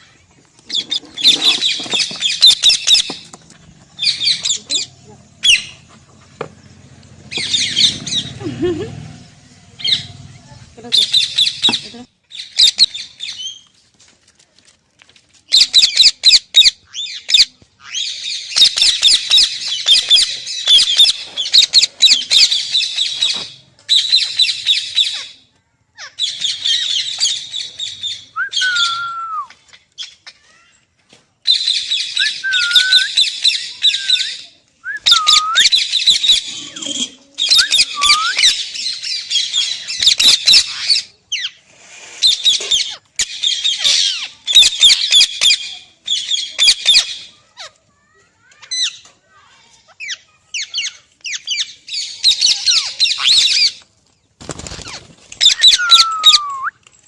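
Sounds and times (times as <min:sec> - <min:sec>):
parrot screeching and chattering: 0:00.6 - 0:03.3, 0:04.0 - 0:05.9, 0:07.3 - 0:08.4, 0:15.5 - 0:25.4, 0:35.1 - 0:47.7, 0:49.9 - 0:53.8.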